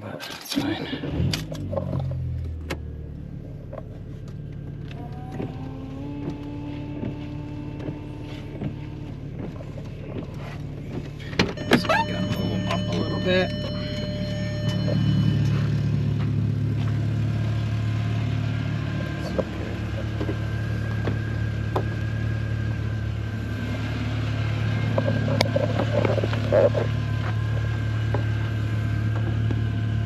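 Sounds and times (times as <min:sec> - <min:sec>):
car engine idling: 0:00.0 - 0:30.0
rustling and knocking handling noise: 0:05.4 - 0:12.9.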